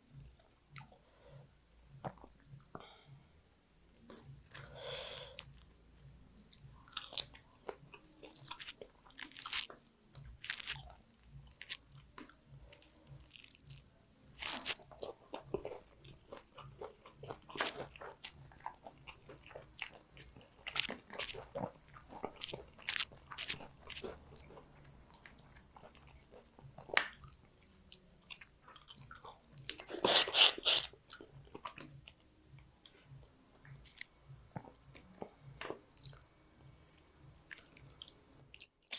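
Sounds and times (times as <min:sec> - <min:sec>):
person chewing food: 0:04.0 - 0:38.9
wet mouth sounds: 0:16.8 - 0:32.2.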